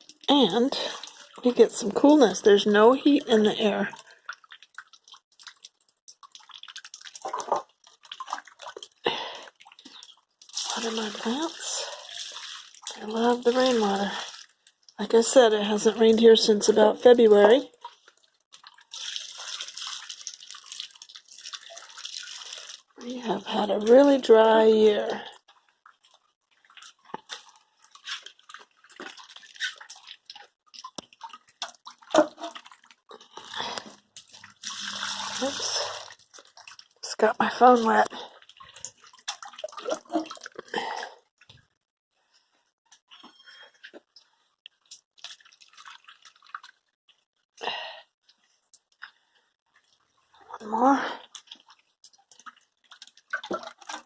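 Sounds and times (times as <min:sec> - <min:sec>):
water splashing on plants: 0:00.0 - 0:16.4, 0:18.5 - 0:24.5, 0:26.7 - 0:40.9, 0:51.4 - 0:54.0.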